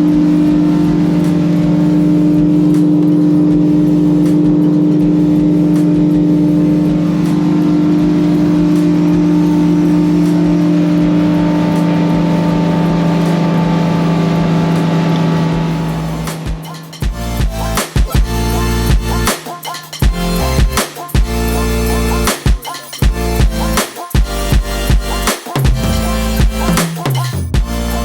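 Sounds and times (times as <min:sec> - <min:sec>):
boat engine humming: 0:00.0 - 0:19.3.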